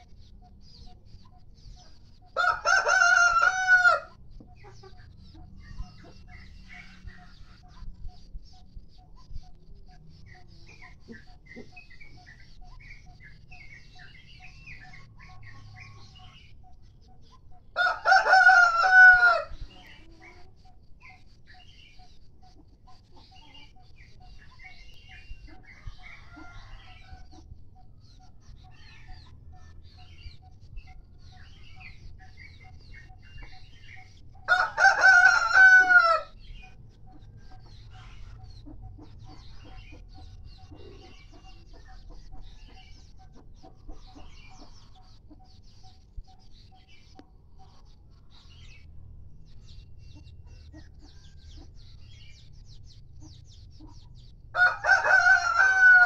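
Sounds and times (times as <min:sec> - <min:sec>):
faint repeated peeping: 0:00.0 - 0:02.4, 0:04.1 - 0:17.8, 0:19.5 - 0:34.5, 0:36.3 - 0:54.5
faint bird chirps: 0:00.0 - 0:02.6, 0:04.2 - 0:17.9, 0:19.5 - 0:34.5
rooster crowing: 0:02.4 - 0:04.1, 0:17.8 - 0:19.6, 0:34.5 - 0:36.4, 0:54.6 - 0:56.0.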